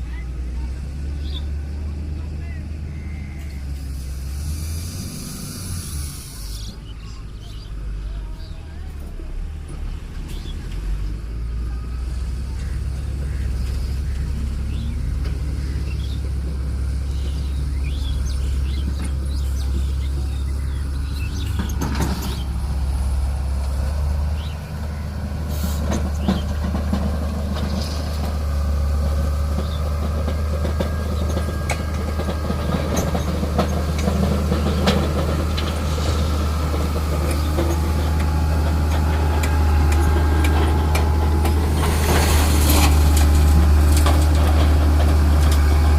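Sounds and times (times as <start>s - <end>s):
heavy diesel engine running: 0.0s - 45.9s
knocks and clatter: 21.4s - 22.6s, 25.8s - 45.9s.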